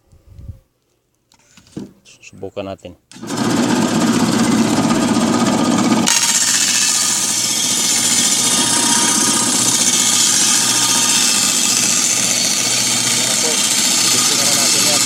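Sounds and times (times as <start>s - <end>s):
table saw cutting plywood: 3.1s - 15.0s.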